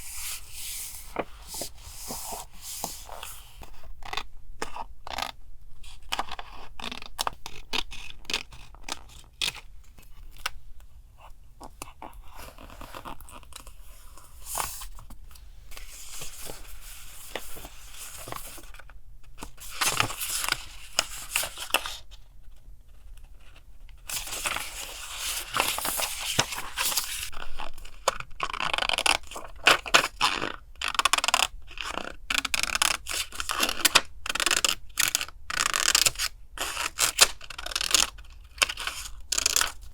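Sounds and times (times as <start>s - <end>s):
paper rustling and tearing: 24.1s - 27.3s.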